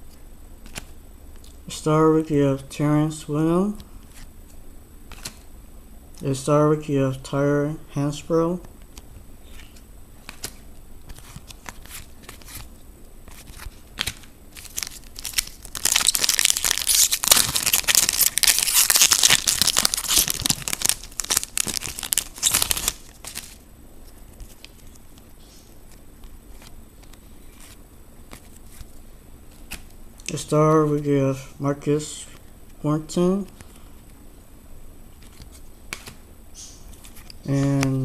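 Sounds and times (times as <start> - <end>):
cards being handled ticks: 5.1 - 5.4, 8.6 - 31.1, 35.2 - 38.0
foil wrapper tearing and crinkling: 13.4 - 23.6.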